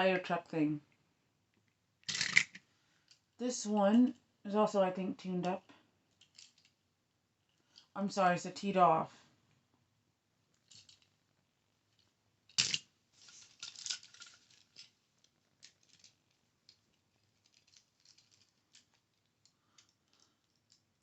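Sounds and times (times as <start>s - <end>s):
toy cars clicking and tapping: 2.0s - 3.2s, 6.1s - 6.8s, 12.0s - 21.0s.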